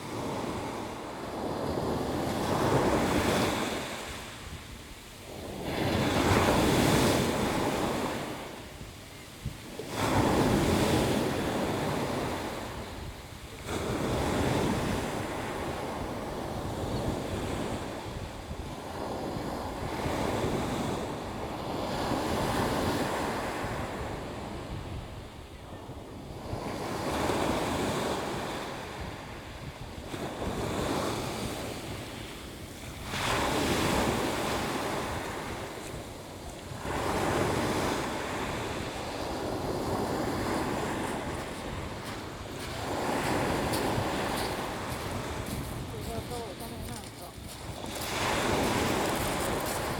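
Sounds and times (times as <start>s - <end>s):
sea waves washing in: 27.5s - 49.9s.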